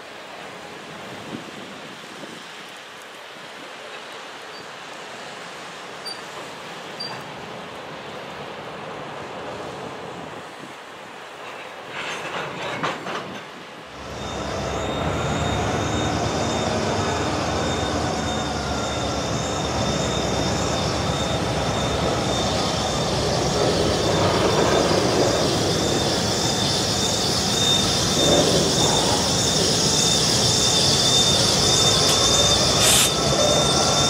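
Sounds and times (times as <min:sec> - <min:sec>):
freight cars rolling over rails: 0:11.3 - 0:34.0
high-pitched wheel squeal: 0:14.0 - 0:34.0.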